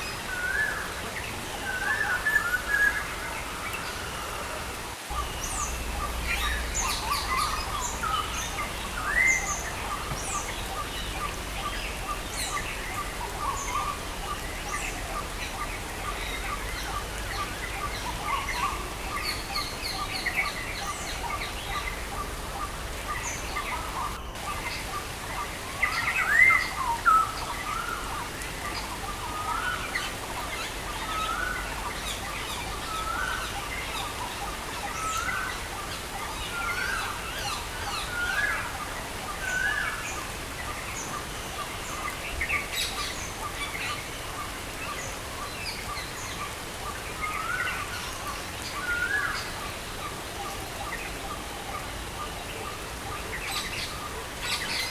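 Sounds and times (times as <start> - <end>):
songbirds chirping: 0.0 - 54.9
rain hissing: 3.8 - 54.9.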